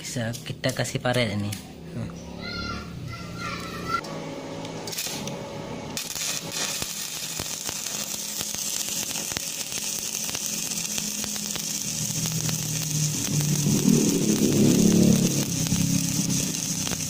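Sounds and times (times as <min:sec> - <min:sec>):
arc welding crackling sizzle: 0:03.4 - 0:17.0.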